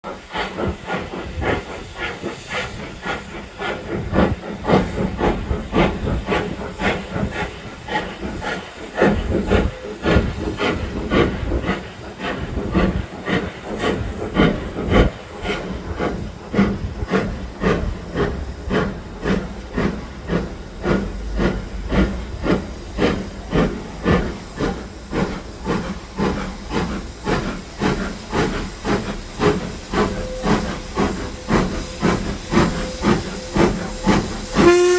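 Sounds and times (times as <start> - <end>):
steam locomotive chuffing: 0.0 - 34.9
steam hissing: 0.1 - 34.9.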